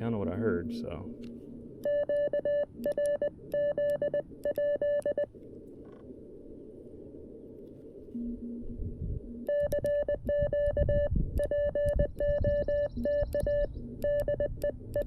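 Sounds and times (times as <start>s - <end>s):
receiver noise hiss: 0.0s - 15.0s
morse code keyed tone: 1.8s - 5.3s, 8.2s - 15.0s.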